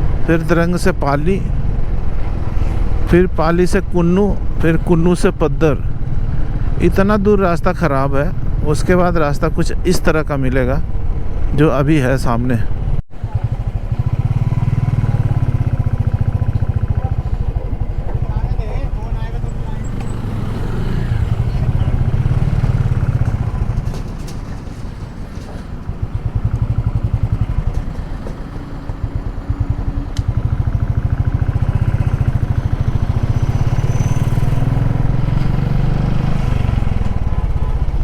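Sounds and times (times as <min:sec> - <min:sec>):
motorcycle engine running: 0:12.8 - 0:38.0.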